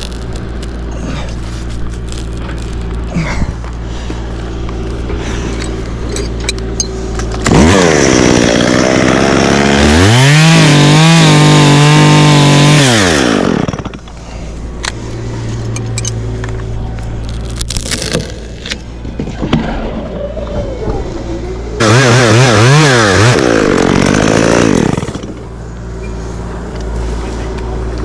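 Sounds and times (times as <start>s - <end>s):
chainsaw idling and revving: 7.3s - 14.1s, 21.8s - 25.6s.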